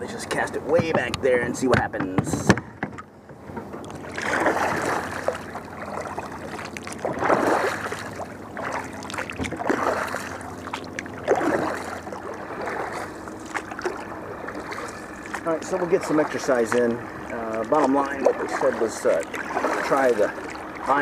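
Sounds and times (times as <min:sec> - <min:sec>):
paddle strokes swishing through water: 0:02.0 - 0:21.0.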